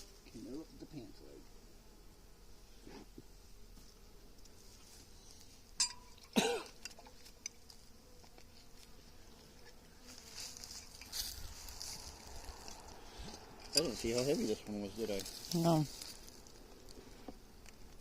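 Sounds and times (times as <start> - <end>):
honeybees buzzing: 0.0 - 18.0
rustling handling noise: 10.1 - 17.0.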